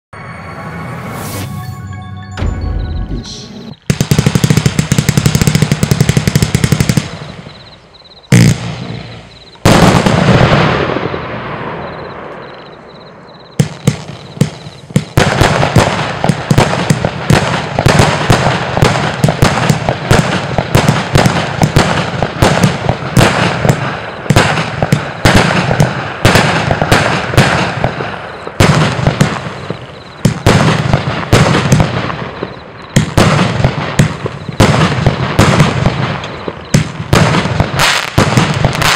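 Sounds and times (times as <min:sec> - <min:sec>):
firework battery shots: 0:02.4 - 0:12.5, 0:13.6 - 0:38.9
heavy firework bangs: 0:03.8 - 0:07.6, 0:08.3 - 0:12.6, 0:13.6 - 0:38.9
firework crackle: 0:14.8 - 0:38.9.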